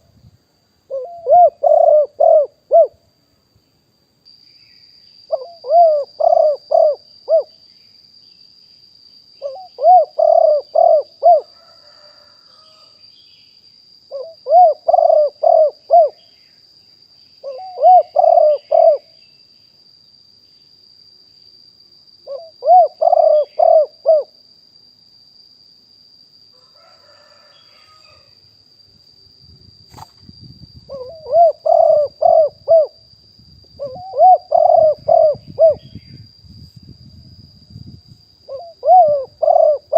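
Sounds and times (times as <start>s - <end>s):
dove cooing: 0.9s - 3.0s, 5.3s - 7.5s, 9.4s - 12.4s, 14.1s - 16.2s, 17.4s - 19.2s, 22.2s - 24.3s, 30.9s - 33.0s, 33.8s - 36.0s, 38.5s - 39.9s.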